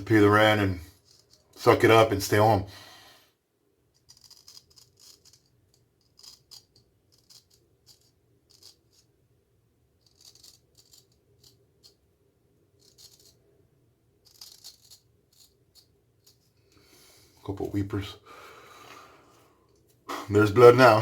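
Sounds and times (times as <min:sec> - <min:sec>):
razor scraping stubble: 0:10.0 - 0:12.0, 0:12.8 - 0:13.4.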